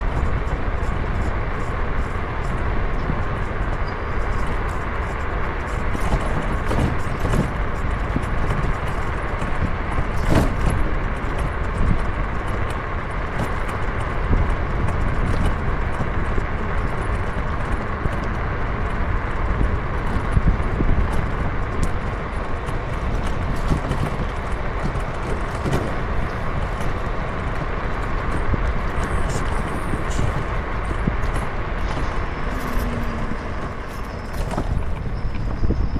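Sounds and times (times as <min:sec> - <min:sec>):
road and wind rumble: 0:00.0 - 0:35.9.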